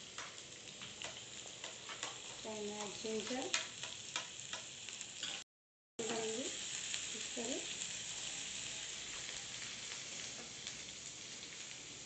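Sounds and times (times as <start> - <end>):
garlic sizzling in hot oil: 0.0 - 12.0
spatula stirring in pan: 0.1 - 5.4.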